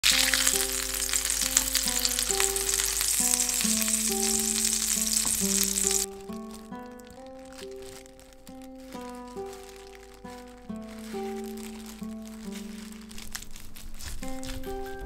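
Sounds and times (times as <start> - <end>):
food sizzling in a frying pan: 0.0 - 6.2
oil popping: 0.0 - 14.6
light background music: 0.1 - 13.4, 14.0 - 15.0.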